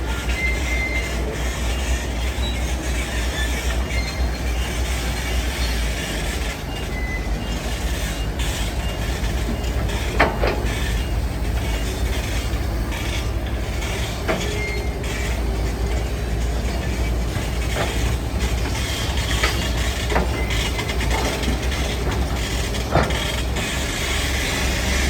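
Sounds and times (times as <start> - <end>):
construction machinery engine rumble: 0.0 - 25.0
short high squeaks: 2.3 - 4.8, 6.9 - 17.0.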